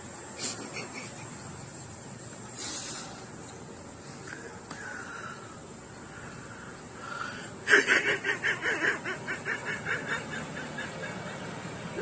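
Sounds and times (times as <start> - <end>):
person laughing: 0.4 - 1.4, 7.6 - 11.5.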